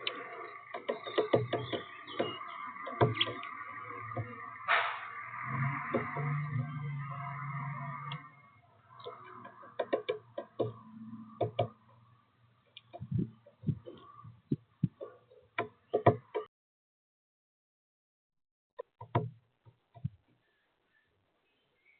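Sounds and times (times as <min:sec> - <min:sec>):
woodpecker tapping on seeds: 0:00.0 - 0:03.6.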